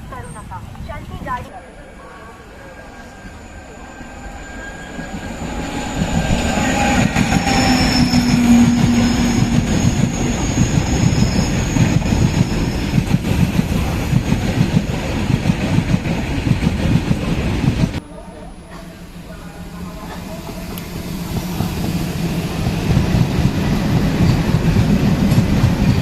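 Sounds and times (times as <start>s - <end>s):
high wheel squeal: 2.6s - 13.0s
train wheels rumbling and clattering: 3.1s - 18.0s, 18.7s - 26.0s.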